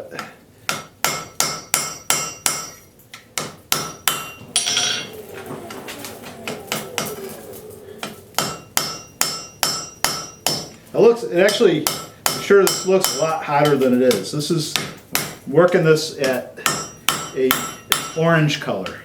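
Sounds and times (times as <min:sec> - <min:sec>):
hammer striking steel on anvil: 0:00.7 - 0:05.2, 0:08.0 - 0:10.8, 0:11.4 - 0:15.4, 0:16.2 - 0:18.3.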